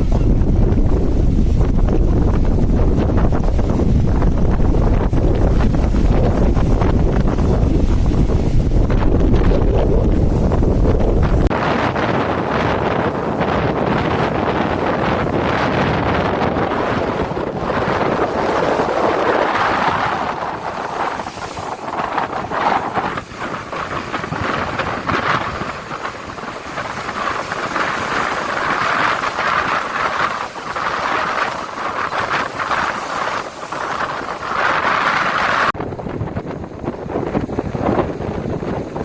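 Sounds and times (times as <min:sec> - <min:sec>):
strong wind on microphone: 0:00.0 - 0:39.0.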